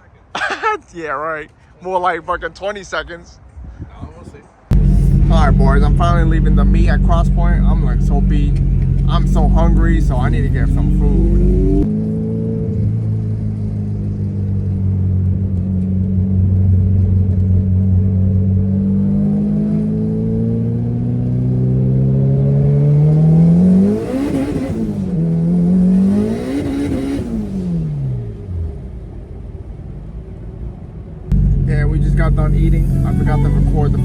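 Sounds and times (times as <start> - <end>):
car engine accelerating: 4.7 - 29.2, 31.3 - 34.0.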